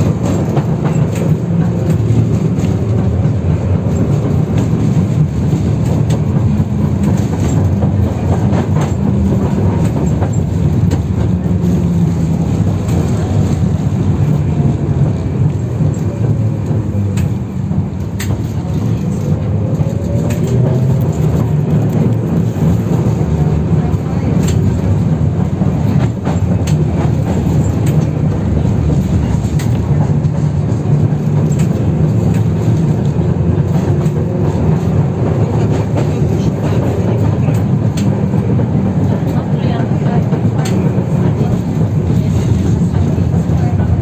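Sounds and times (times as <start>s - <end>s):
steel tram wheels rumbling on rails: 0.0s - 44.0s.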